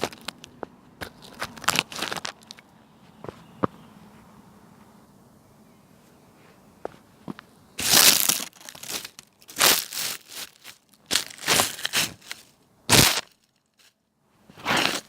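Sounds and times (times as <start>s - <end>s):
crunching and crackling: 0.0s - 2.7s, 7.8s - 14.0s.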